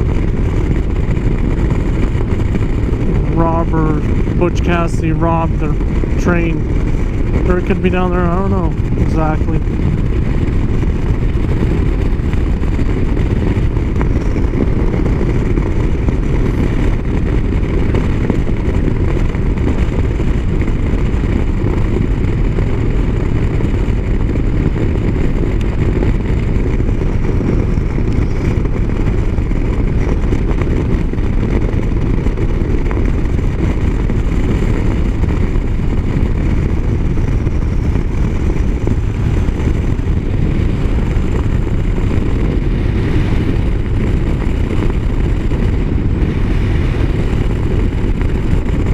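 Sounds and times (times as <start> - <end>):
motorcycle engine: 0.0 - 48.9
wind and road noise: 0.0 - 48.9.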